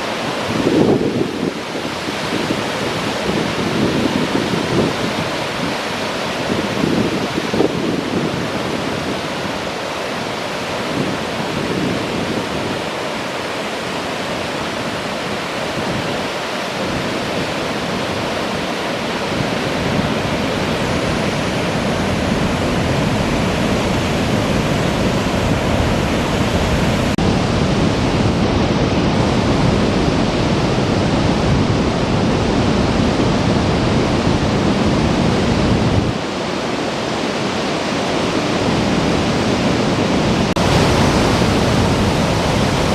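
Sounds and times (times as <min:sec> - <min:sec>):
river water rushing: 0:00.0 - 0:42.9.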